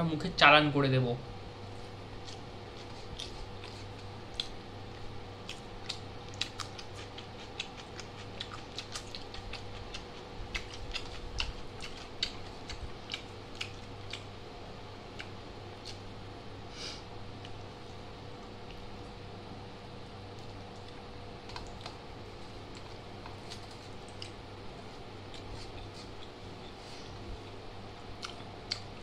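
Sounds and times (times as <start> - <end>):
steady low hum: 0.0 - 29.0
wet chewing clicks and smacks: 2.2 - 14.3, 15.1 - 16.1, 20.3 - 22.0, 28.2 - 29.0.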